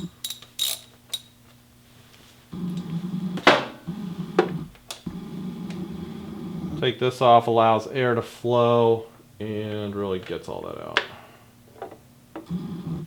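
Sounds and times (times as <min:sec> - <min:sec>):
metal tool clinks: 0:00.0 - 0:01.4
low steady hum: 0:00.0 - 0:13.0.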